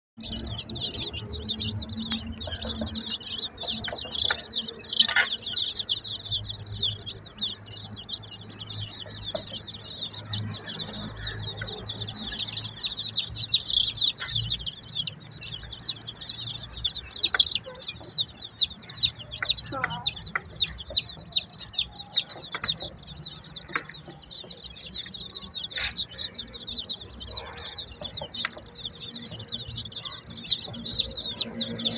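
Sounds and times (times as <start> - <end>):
chicks peeping: 0.2 - 31.9.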